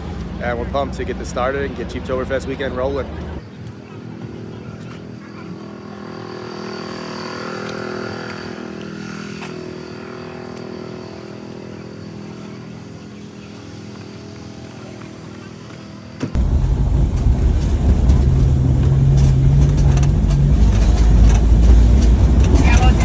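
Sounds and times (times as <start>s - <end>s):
car engine idling: 16.4s - 23.0s.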